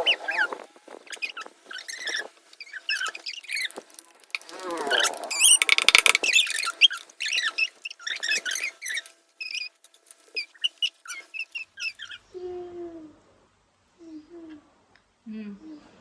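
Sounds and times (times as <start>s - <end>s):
slime squelching and squeaking: 0.0s - 12.3s.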